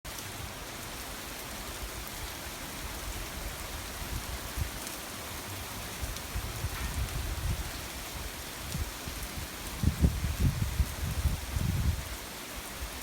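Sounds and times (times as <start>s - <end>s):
heavy rain hissing: 0.1s - 13.0s.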